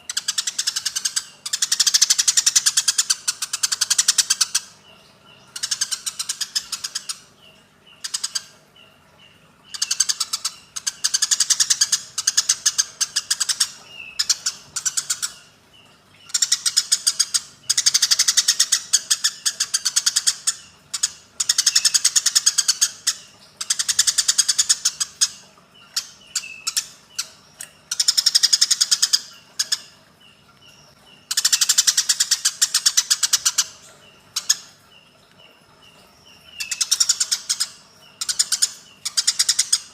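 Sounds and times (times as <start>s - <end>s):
sparrows chattering harshly: 0.0s - 39.9s.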